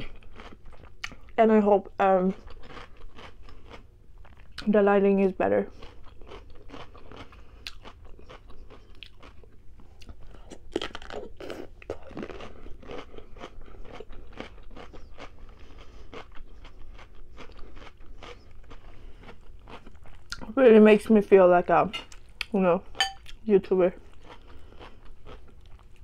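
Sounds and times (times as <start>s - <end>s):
crunching raw vegetable: 2.3s - 4.7s, 5.7s - 20.6s.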